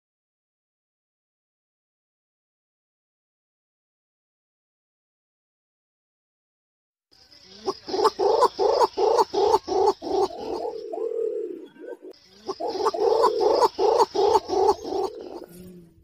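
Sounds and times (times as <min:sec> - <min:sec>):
pigeon calling in deep pulsed notes: 0:07.5 - 0:16.0.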